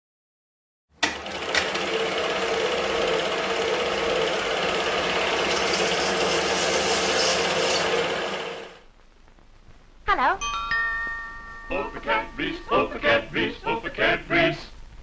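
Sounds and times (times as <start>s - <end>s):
motor-driven machine running: 1.0s - 8.8s.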